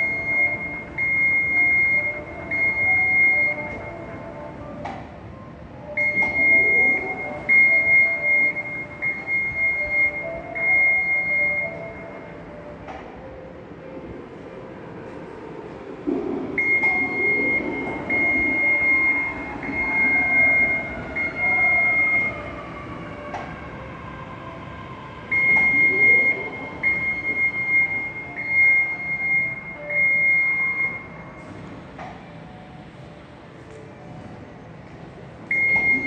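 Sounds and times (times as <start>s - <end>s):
escalator warning buzzer beeping: 0.0s - 4.2s, 6.0s - 12.3s, 16.6s - 22.5s, 25.3s - 31.4s, 35.5s - 36.0s.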